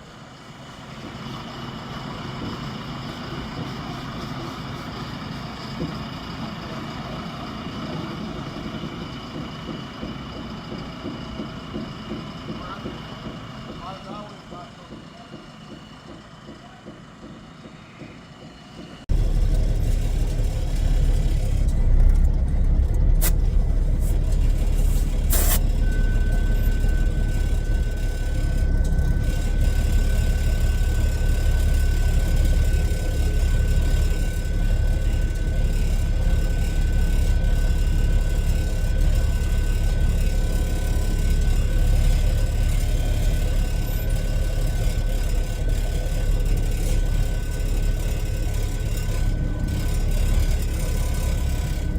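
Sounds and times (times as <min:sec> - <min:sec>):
diesel engine rumbling: 0:00.0 - 0:51.9
thin high whine: 0:23.2 - 0:31.4.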